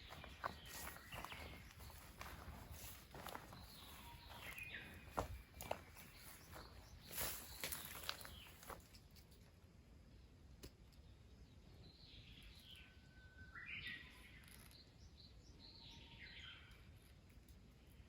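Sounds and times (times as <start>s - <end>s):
faint bird chirps: 0.0s - 8.8s, 11.6s - 17.2s.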